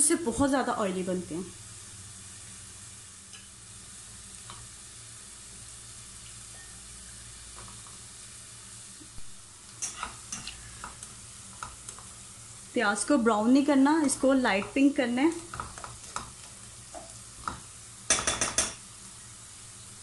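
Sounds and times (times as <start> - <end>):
vegetables sizzling in oil: 0.0 - 20.0
slices tapping into pan: 15.4 - 18.8.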